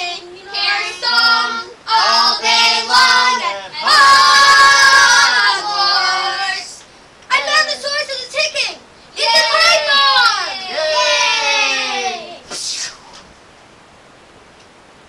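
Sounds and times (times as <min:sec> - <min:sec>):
child singing: 0:00.0 - 0:07.9.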